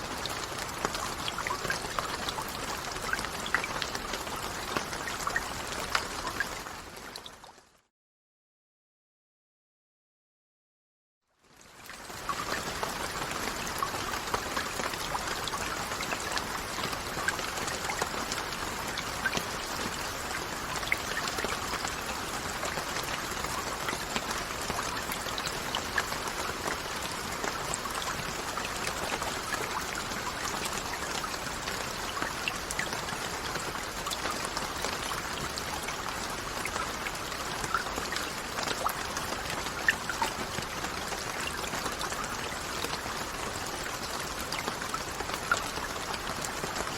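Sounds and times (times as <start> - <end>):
steady rainfall: 0.0 - 7.6, 11.4 - 46.9
raindrops pattering on a surface: 0.0 - 7.7, 11.4 - 46.9.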